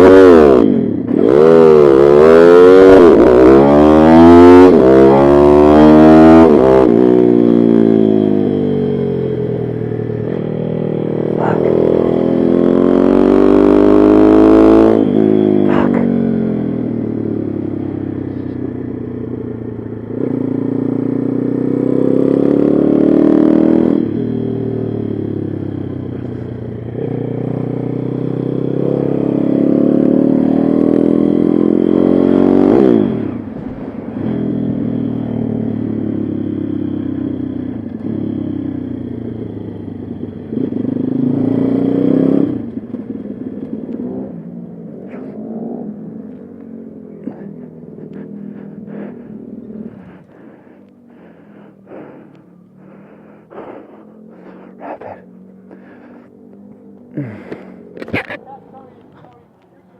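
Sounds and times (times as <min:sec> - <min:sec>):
motorbike engine accelerating: 0:00.0 - 0:59.9.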